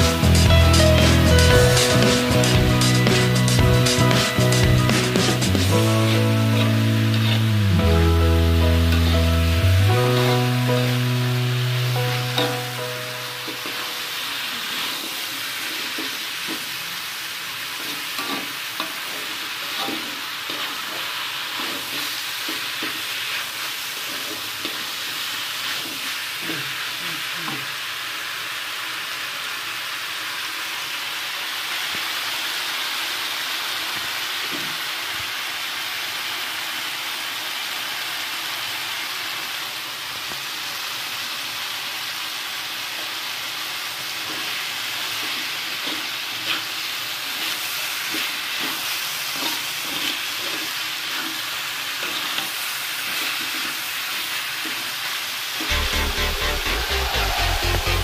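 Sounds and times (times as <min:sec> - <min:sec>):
food sizzling in a wok: 0:00.0 - 0:58.0
metal spatula scraping a wok: 0:04.9 - 0:07.6, 0:17.8 - 0:23.0, 0:47.4 - 0:52.5.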